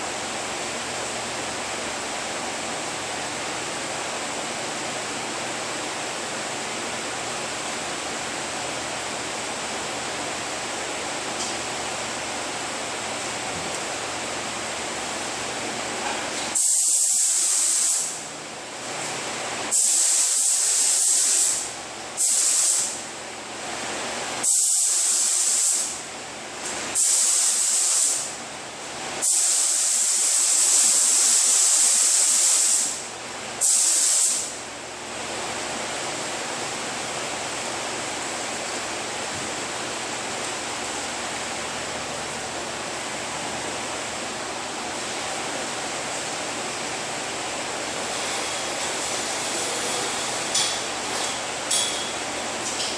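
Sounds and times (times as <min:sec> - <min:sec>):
steady background hiss: 0:00.0 - 0:52.9
paint spray gun hissing: 0:16.6 - 0:18.2, 0:19.7 - 0:23.0, 0:24.4 - 0:25.9, 0:27.0 - 0:28.3, 0:29.2 - 0:33.0, 0:33.6 - 0:34.6.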